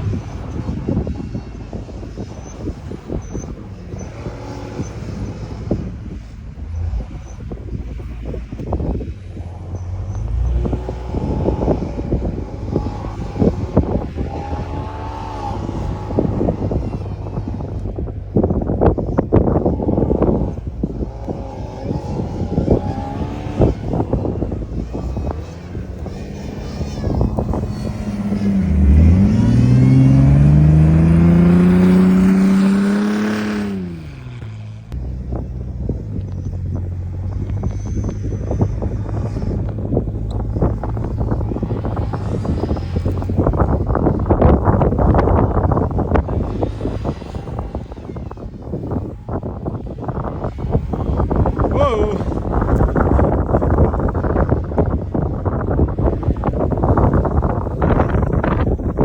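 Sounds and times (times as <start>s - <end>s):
vehicle engine driving through snow: 0.0s - 59.0s.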